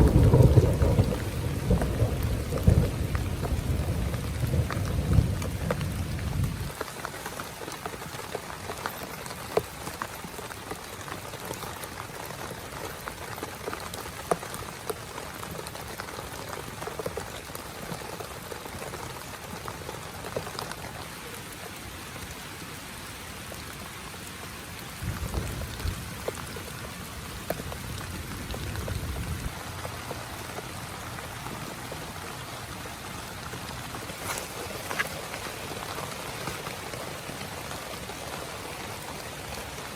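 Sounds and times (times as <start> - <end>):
thunder rumble: 0.0 - 6.8, 25.0 - 26.4
heavy rain on a tent: 0.0 - 39.9.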